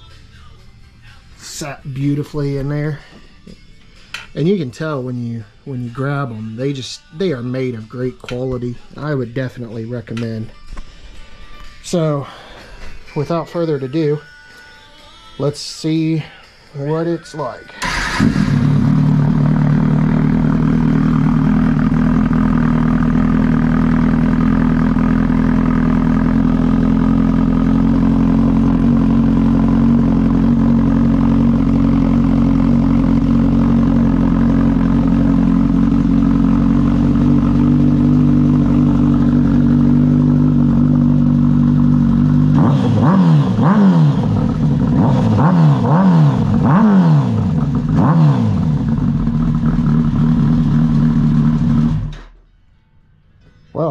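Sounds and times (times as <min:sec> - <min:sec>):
motorcycle engine idling: 0:17.8 - 0:52.3.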